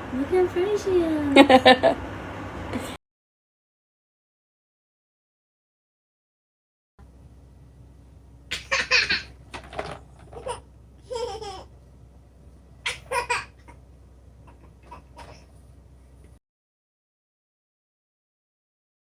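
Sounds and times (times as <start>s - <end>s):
low steady hum: 0.0s - 3.0s, 7.0s - 16.4s
person laughing: 1.3s - 2.0s.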